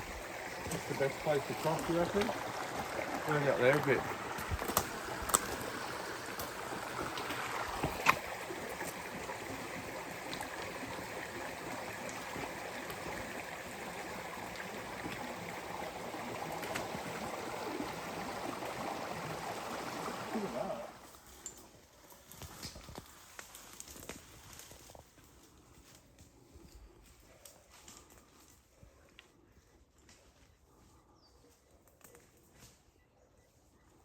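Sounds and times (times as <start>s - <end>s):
creek water running over rocks: 0.0s - 25.0s.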